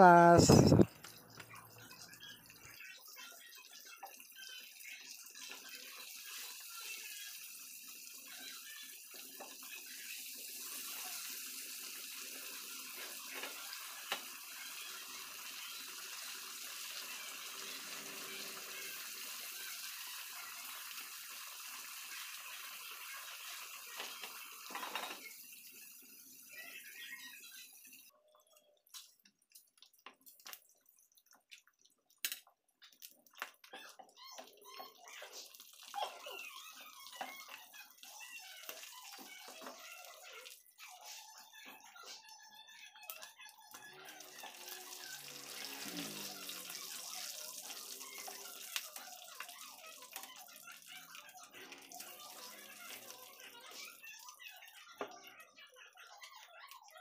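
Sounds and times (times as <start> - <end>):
meat sizzling in oil: 0.1 - 28.1, 34.4 - 55.0.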